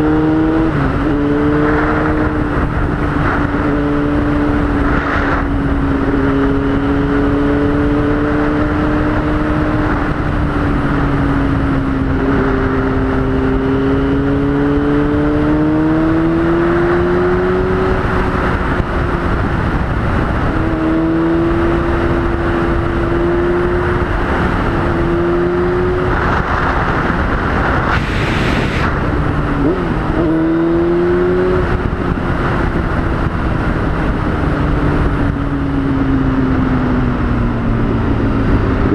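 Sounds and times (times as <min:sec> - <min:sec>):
motorcycle engine revving: 0:00.0 - 0:38.9
wind rush: 0:00.0 - 0:38.9.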